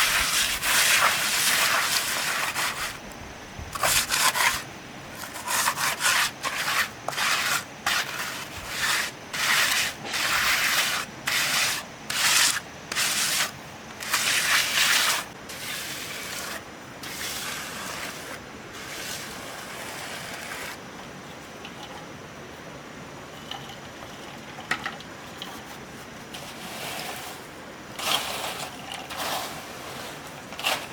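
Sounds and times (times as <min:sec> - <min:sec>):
hand tool scraping mortar: 0:00.0 - 0:03.0, 0:03.8 - 0:20.8.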